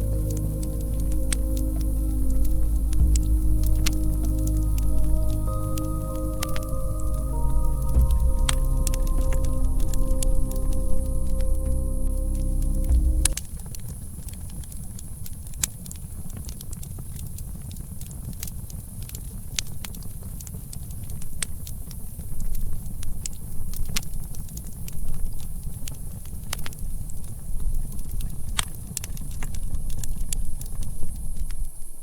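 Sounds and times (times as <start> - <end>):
faint high hiss: 0.0 - 13.6
low rumble of flames: 0.0 - 31.4.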